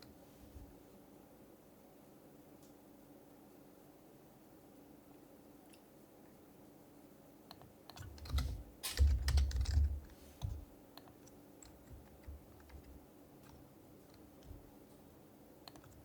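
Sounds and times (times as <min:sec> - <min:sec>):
keyboard keystrokes: 0:07.5 - 0:14.6.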